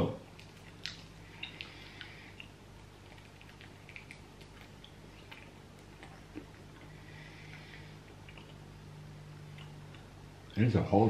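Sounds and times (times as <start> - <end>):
chewing hard sweet: 0.4 - 8.7.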